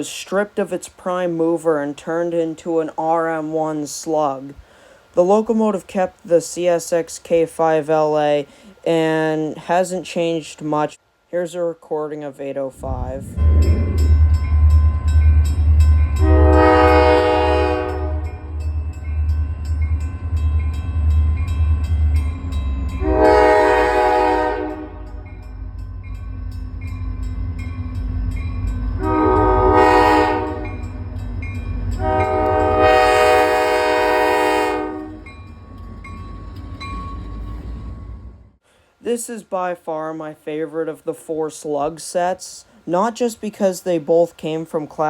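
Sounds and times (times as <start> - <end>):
low pulsing train rumble: 12.7 - 38.6
train air horn blasts: 16.2 - 18.7, 23.0 - 25.4, 29.0 - 30.9, 32.0 - 35.3.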